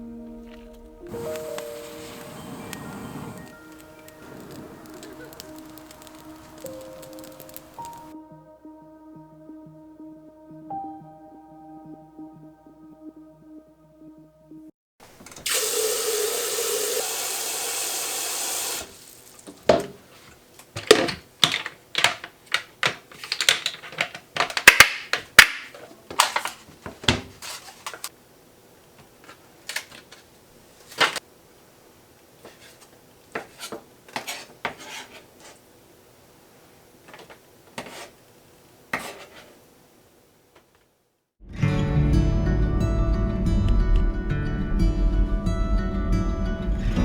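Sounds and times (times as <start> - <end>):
water running: 1.0 - 8.2, 15.2 - 19.8
clatters and knocks of handling: 19.3 - 28.1.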